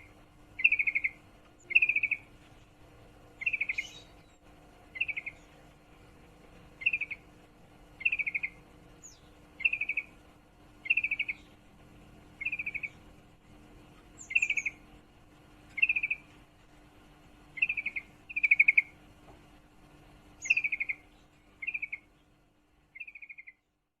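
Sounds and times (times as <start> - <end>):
bird chattering calls: 0.0 - 2.3, 3.4 - 4.2, 4.9 - 5.5, 6.8 - 7.3, 8.0 - 10.2, 10.8 - 11.6, 12.4 - 13.0, 14.2 - 14.8, 15.7 - 16.3, 17.6 - 19.0, 20.4 - 22.1, 23.0 - 23.6.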